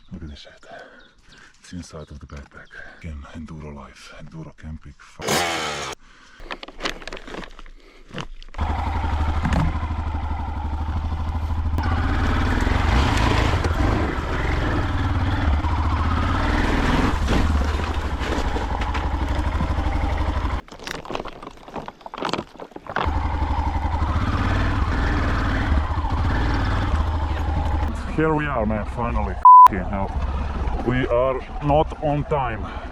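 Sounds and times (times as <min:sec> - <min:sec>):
dirt bike engine running: 0:08.6 - 0:20.6, 0:23.0 - 0:31.8.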